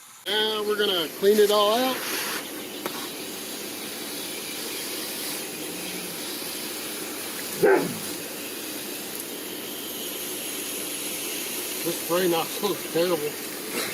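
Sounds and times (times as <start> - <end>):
hose nozzle spraying water: 4.1 - 13.9.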